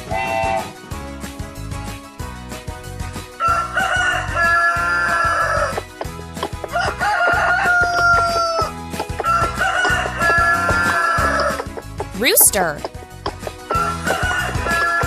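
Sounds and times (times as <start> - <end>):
background music with steady beat: 0.0 - 15.0
rooster crowing: 3.4 - 5.7, 6.7 - 11.6, 13.7 - 15.0.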